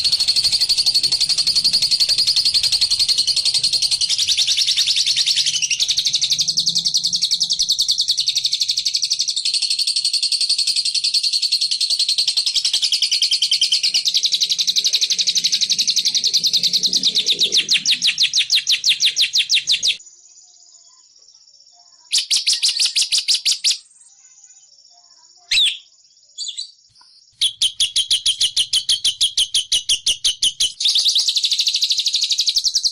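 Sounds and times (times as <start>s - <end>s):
lovebird chattering trill: 0.0s - 9.2s, 22.1s - 23.9s, 25.4s - 32.9s.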